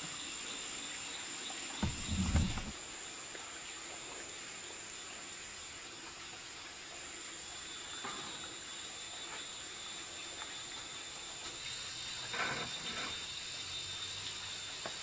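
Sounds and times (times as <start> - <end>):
high-pitched insect drone: 7.2 - 15.0.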